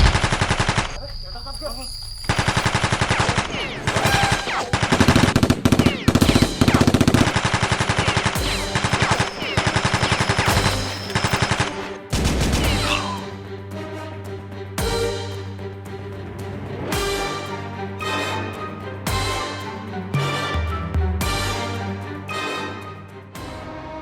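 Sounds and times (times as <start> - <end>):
machine gun bursts: 0.0 - 1.0, 2.3 - 12.6.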